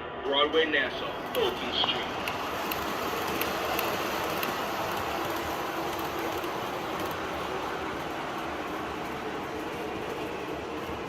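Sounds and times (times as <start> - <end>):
subway car running noise: 0.0 - 11.0
model train wheels on track: 0.5 - 11.0.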